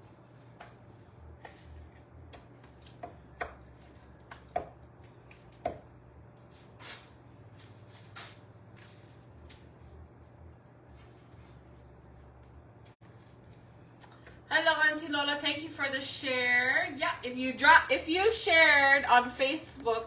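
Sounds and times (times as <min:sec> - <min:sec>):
steady low hum: 0:00.0 - 0:20.0
kitchen taps and knocks: 0:05.6 - 0:05.9.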